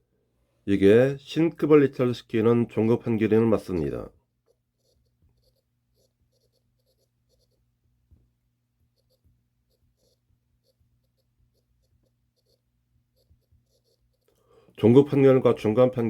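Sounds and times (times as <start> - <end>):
pen scratching on paper: 4.5 - 7.7, 8.8 - 14.4.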